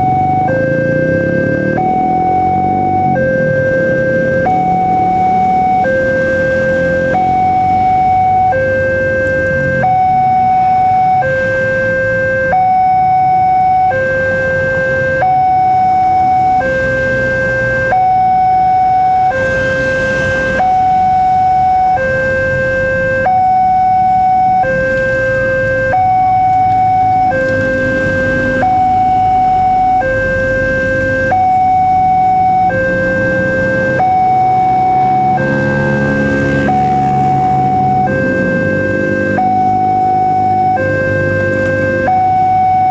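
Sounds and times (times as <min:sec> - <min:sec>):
level crossing two-tone alarm: 0:00.0 - 0:42.9
low traffic rumble: 0:00.0 - 0:42.9.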